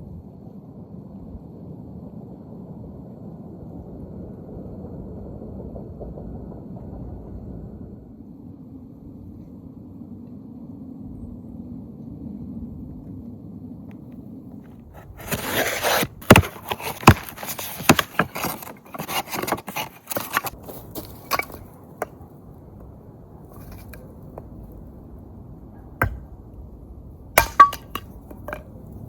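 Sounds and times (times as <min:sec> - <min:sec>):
objects handled and set down: 0:15.0 - 0:21.7, 0:27.4 - 0:28.7.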